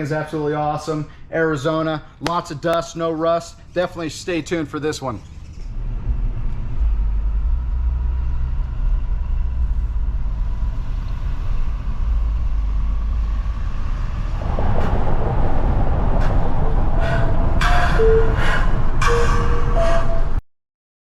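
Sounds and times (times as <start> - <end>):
vehicle engine rumbling: 4.6 - 20.4.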